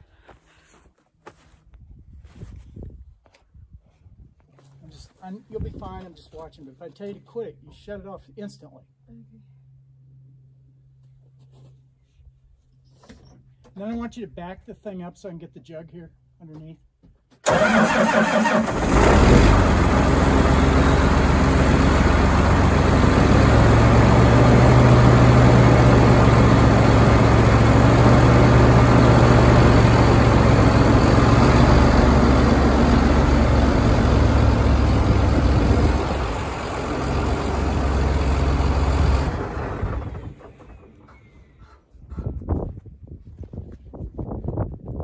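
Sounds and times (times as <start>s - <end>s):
tractor diesel engine running: 17.4s - 42.4s.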